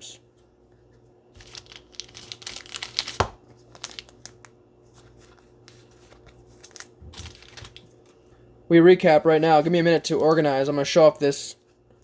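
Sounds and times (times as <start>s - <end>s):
plastic card sleeves rustling: 1.4s - 8.2s.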